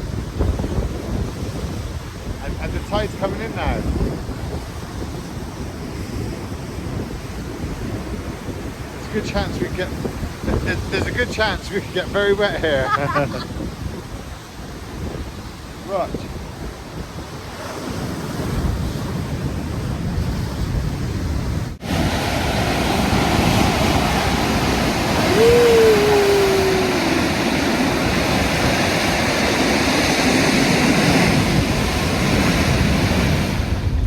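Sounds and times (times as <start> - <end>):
surf rushing over rocks: 0.0 - 5.0, 21.7 - 34.0
short falling cry: 25.2 - 27.6.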